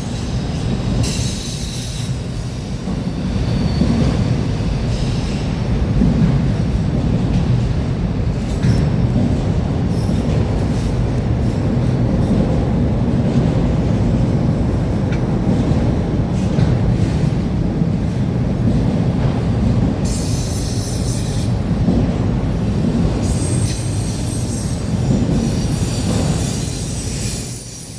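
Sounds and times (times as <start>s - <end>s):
steel wheels squealing: 0.0s - 5.6s, 23.2s - 27.9s
train wheels rumbling on rail: 0.0s - 27.9s.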